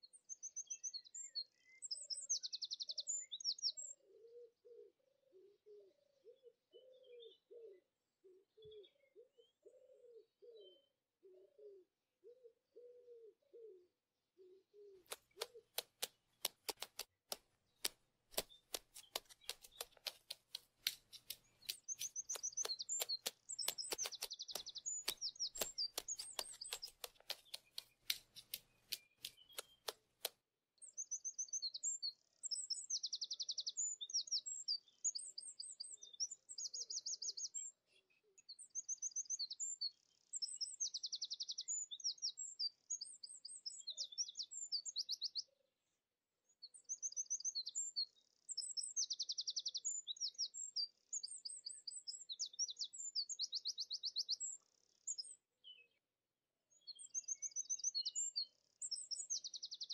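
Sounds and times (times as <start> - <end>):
songbird trills and chirps: 0.0 - 45.6, 46.5 - 56.1, 56.7 - 59.9
sharp clicks: 15.1 - 30.4.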